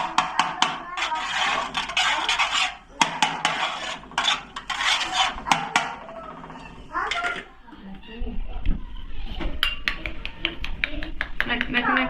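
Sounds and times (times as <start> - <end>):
metal scraping container: 0.0 - 7.6.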